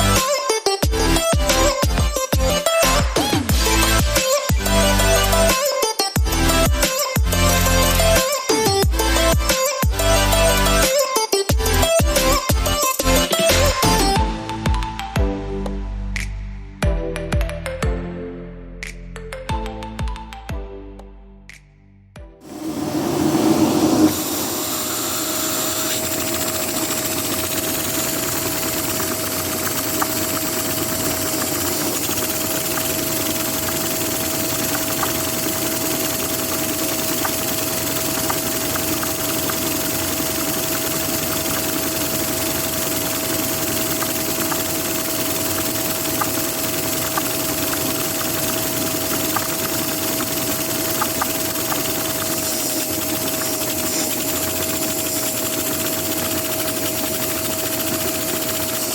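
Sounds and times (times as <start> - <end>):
vacuum cleaner running: 22.4 - 58.9.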